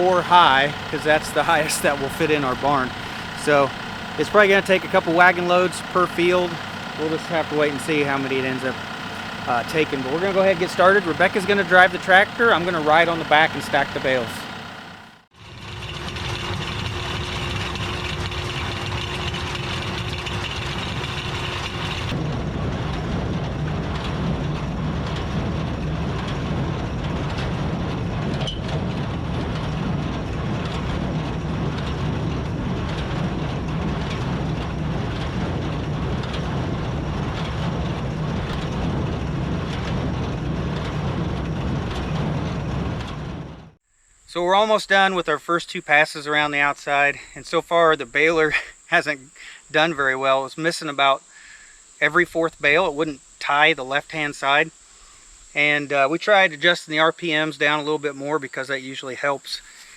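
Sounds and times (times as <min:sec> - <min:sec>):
baler mechanical clatter: 0:00.0 - 0:43.8
tractor rumble: 0:00.0 - 0:43.8.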